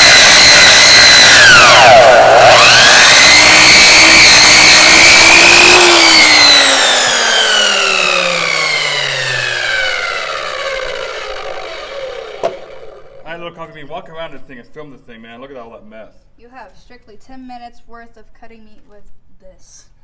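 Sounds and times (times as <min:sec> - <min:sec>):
chop saw cutting meat: 0:00.0 - 0:13.0.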